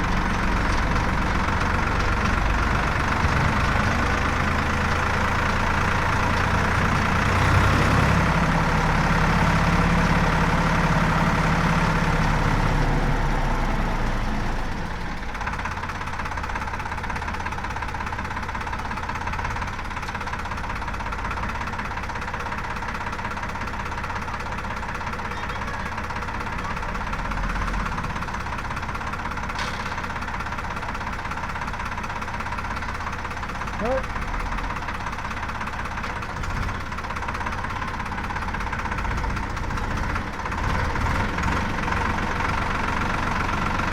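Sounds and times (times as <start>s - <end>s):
heavy machinery diesel engine: 0.0s - 43.9s.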